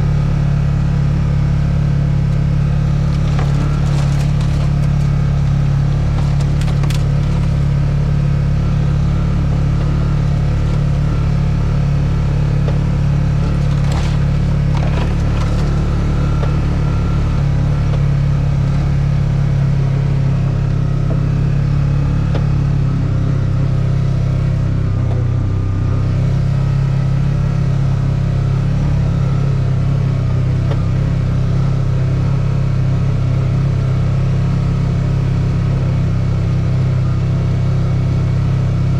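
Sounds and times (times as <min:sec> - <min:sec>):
motor humming: 0:02.3 - 0:18.9.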